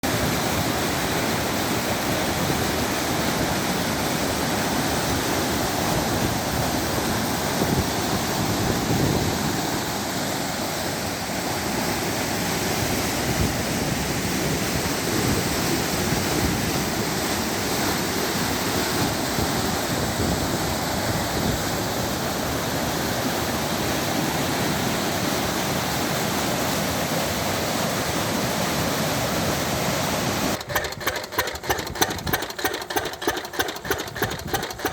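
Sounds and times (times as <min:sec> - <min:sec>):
rush like flowing water: 0:00.0 - 0:34.9
diesel engine running: 0:30.6 - 0:34.9.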